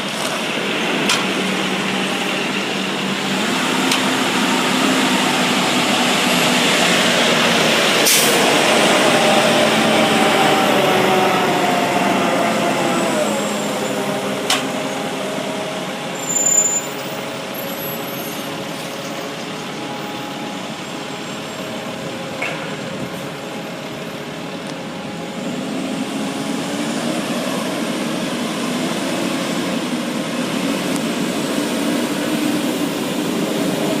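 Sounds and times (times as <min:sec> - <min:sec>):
garbage truck engine running: 0:00.0 - 0:16.3.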